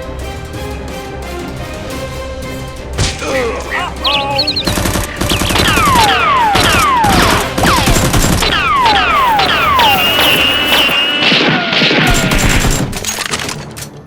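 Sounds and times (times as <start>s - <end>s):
falling whistles: 4.0s - 7.3s, 8.5s - 12.2s
rapid automatic gunfire: 4.6s - 13.0s
steady high tone: 8.6s - 11.3s.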